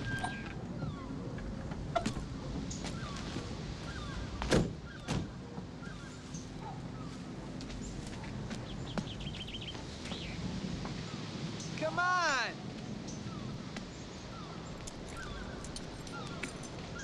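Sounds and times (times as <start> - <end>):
bird chirps and trill: 14.3 - 17.0.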